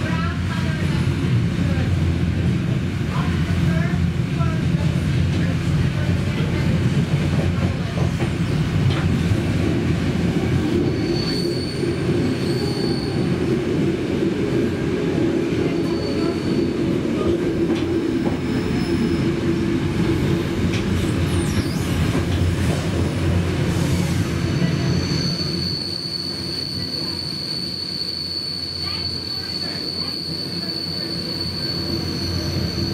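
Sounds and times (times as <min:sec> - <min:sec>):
train wheels rumbling on track: 0:00.0 - 0:32.9
high-pitched wheel squeals: 0:10.8 - 0:13.4, 0:24.5 - 0:32.9.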